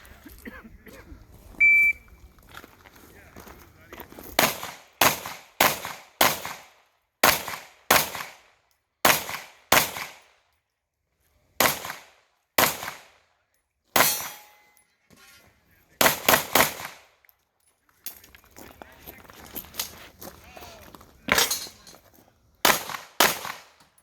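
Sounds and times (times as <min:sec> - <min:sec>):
pistol shots: 0:04.4 - 0:10.4, 0:11.6 - 0:13.2, 0:14.0 - 0:14.6, 0:16.0 - 0:17.2, 0:22.6 - 0:23.8.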